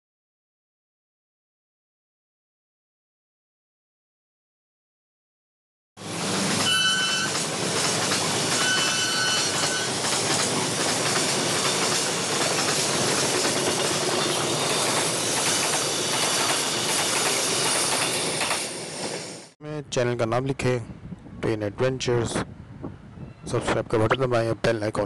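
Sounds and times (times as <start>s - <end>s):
train wheels rumbling and rattling: 6.0s - 19.4s
brief high-pitched tone: 6.6s - 7.3s.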